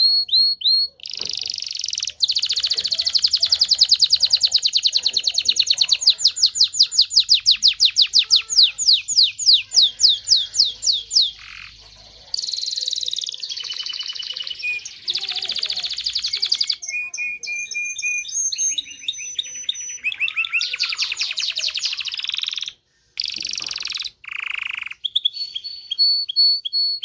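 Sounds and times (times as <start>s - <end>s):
canary singing: 0.0s - 27.0s.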